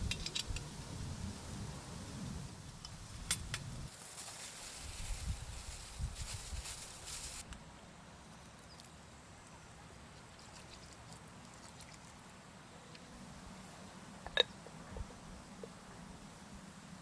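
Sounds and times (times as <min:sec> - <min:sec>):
faint outdoor ambience: 0:00.0 - 0:17.0
loud hiss: 0:01.0 - 0:07.5.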